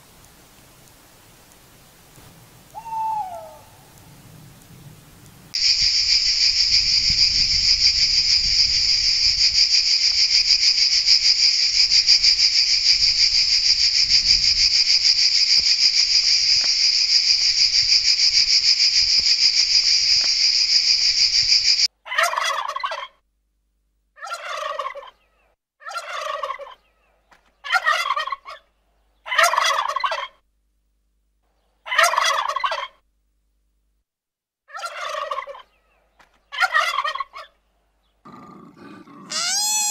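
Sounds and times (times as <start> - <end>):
cicada buzzing: 5.6 - 21.9, 39.3 - 39.9
turkey gobbling: 22.1 - 23.2, 24.2 - 25.2, 25.8 - 26.8, 27.6 - 28.6, 29.3 - 30.4, 31.9 - 33.0, 34.7 - 35.7, 36.5 - 37.5, 39.3 - 39.9.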